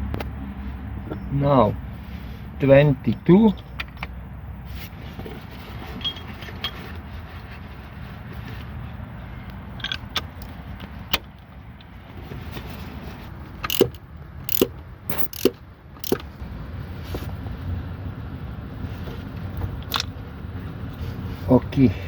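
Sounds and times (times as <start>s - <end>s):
low steady rumble: 0.0s - 22.0s
metal wrench clinking: 13.6s - 16.2s.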